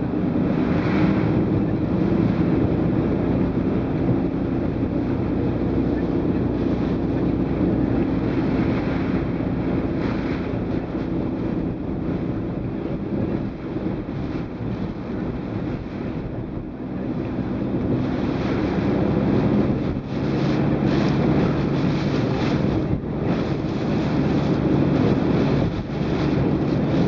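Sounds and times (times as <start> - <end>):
low steady rumble: 0.0 - 27.0
strong wind gusting: 0.0 - 27.0.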